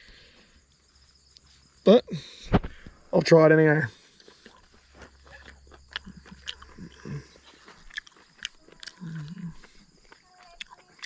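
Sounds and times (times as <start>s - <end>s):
chewing mouth clicks and smacks: 4.2s - 11.0s.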